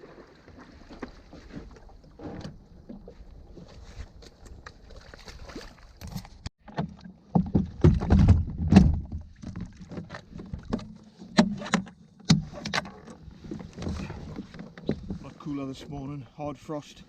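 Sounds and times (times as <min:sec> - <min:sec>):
paddle splashes: 0:00.0 - 0:03.9, 0:04.6 - 0:08.2.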